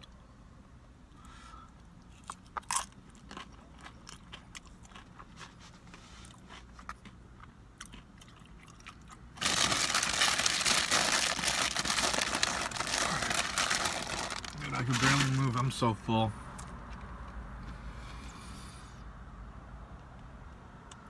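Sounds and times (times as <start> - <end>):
chips crunching while chewed: 2.0 - 15.5
loud dense rustling: 9.4 - 15.6.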